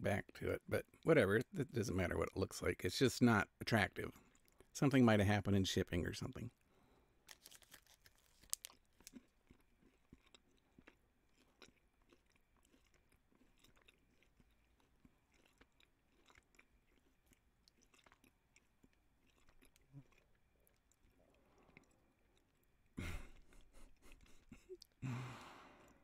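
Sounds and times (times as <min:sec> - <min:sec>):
faint chewing mouth clicks: 0:04.1 - 0:04.7, 0:07.3 - 0:26.0.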